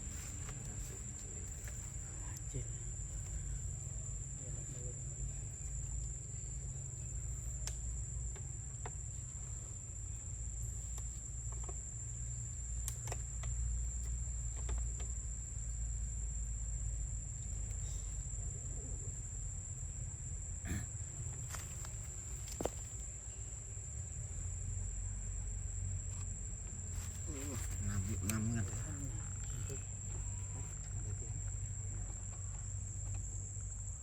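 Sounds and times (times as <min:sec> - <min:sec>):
high-pitched insect drone: 0:27.0 - 0:34.0.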